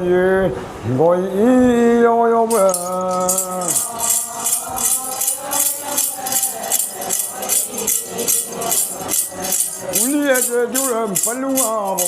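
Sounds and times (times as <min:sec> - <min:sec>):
faint voices: 0:02.5 - 0:12.0
metal jingles shaken rhythmically: 0:02.5 - 0:12.0
person singing sliding yo: 0:02.5 - 0:12.0.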